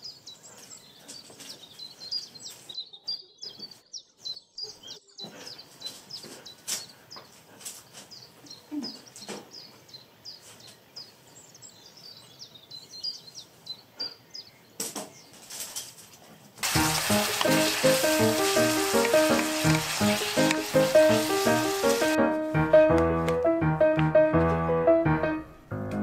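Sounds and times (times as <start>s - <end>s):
small birds chirping: 0.0s - 22.2s
loud sizzling: 16.6s - 22.3s.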